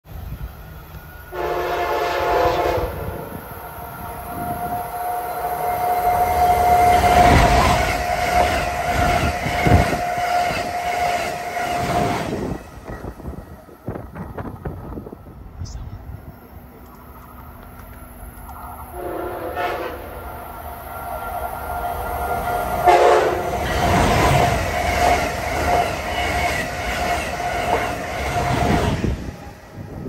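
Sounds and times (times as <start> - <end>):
train high whine: 0.1 - 30.0
train horn chord: 1.3 - 7.6, 18.9 - 20.2, 22.8 - 23.6
train wheels rumbling and clattering: 2.9 - 15.8, 20.8 - 30.0.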